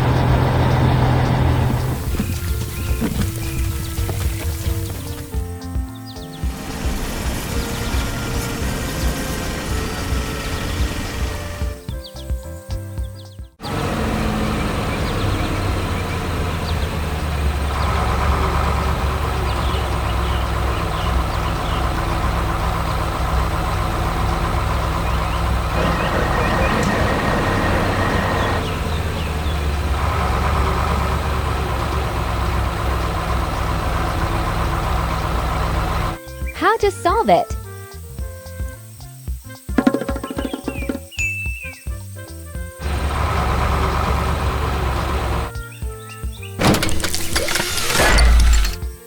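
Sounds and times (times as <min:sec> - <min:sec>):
diesel engine running under load: 0:00.0 - 0:05.5, 0:06.5 - 0:11.8, 0:13.6 - 0:36.8, 0:42.8 - 0:45.6, 0:46.6 - 0:49.0.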